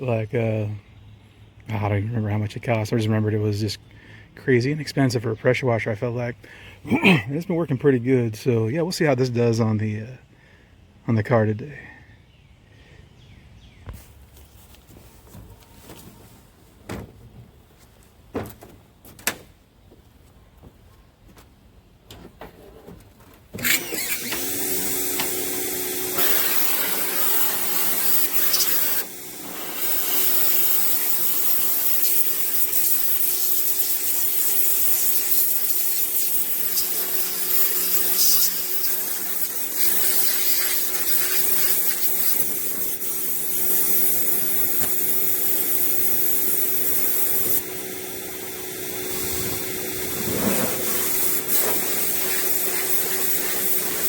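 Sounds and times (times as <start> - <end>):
pressure washer motor hum: 23.6 - 54.0
water jet spraying on metal: 24.5 - 54.0.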